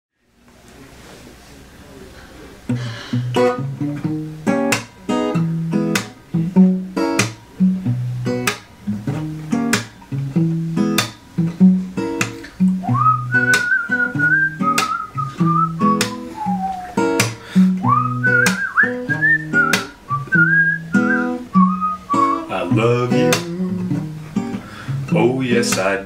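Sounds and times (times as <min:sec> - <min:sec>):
acoustic guitar picking and strumming: 0:02.6 - 0:26.0
faint hiss: 0:07.0 - 0:26.0.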